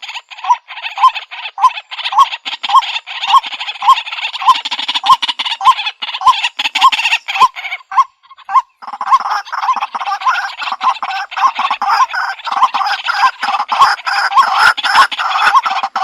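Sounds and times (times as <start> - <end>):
waterhen calling: 0.0 - 16.0
raspy chatter: 8.8 - 16.0.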